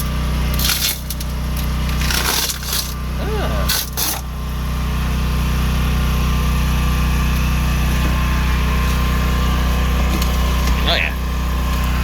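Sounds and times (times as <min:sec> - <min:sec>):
small engine humming: 0:00.0 - 0:12.0.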